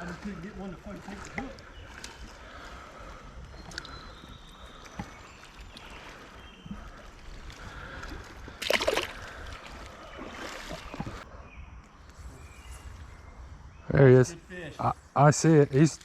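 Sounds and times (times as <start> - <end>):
water sloshing in a creek: 0.0 - 11.3.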